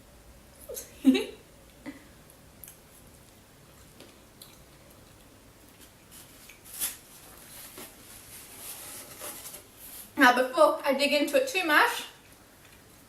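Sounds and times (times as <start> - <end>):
quiet chewing: 1.6 - 6.7, 12.2 - 13.0.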